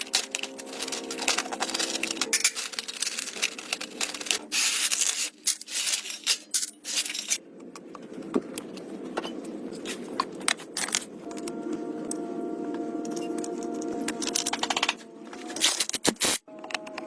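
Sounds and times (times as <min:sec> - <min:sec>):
rough scraping and rubbing: 0:00.0 - 0:07.4.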